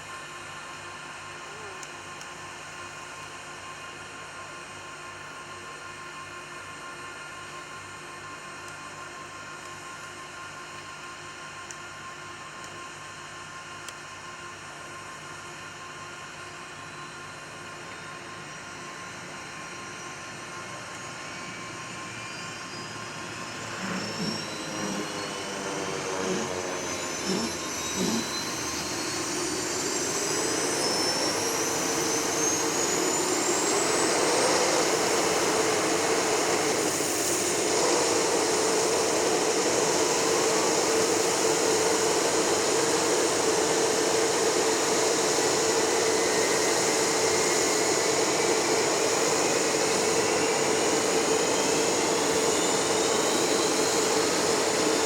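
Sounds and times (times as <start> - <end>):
jet engine whine: 0.0 - 55.0
short low pulses: 23.7 - 29.2.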